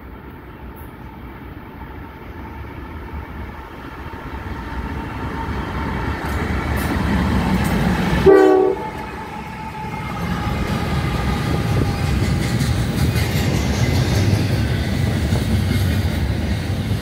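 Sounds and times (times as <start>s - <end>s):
locomotive engine rumble and wheels: 0.0s - 17.0s
locomotive horn blast: 8.2s - 12.0s.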